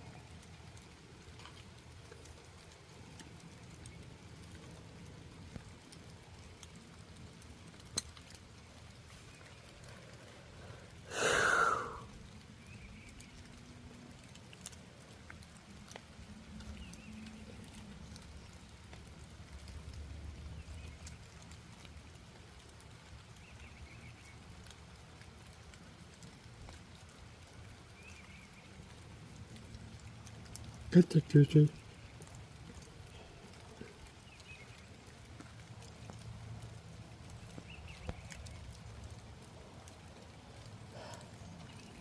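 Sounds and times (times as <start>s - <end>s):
light rain pattering: 0.0s - 42.0s
loud breathy burst: 10.6s - 12.0s
faint ticks: 31.7s - 42.0s.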